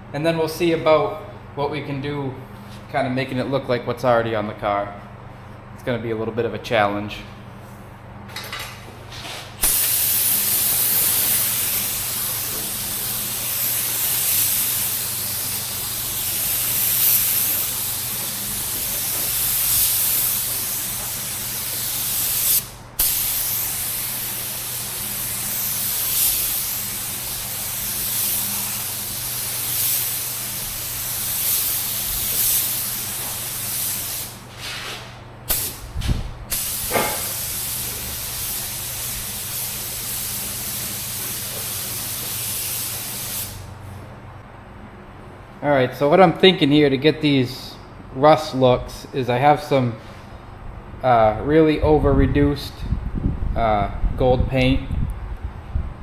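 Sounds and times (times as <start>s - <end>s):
paint spray gun hissing: 9.6s - 34.6s, 35.5s - 43.7s.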